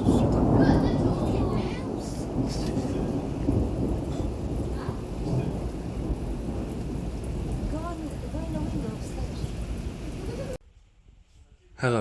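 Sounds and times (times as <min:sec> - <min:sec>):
heavy rain: 0:00.0 - 0:10.6
thunder rumbling: 0:00.0 - 0:10.6.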